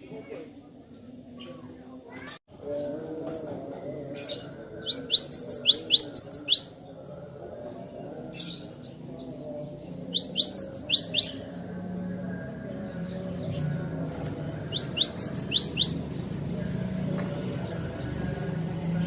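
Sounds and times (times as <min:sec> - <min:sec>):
tit singing high notes: 0:04.9 - 0:06.8, 0:10.2 - 0:11.4, 0:14.7 - 0:16.0.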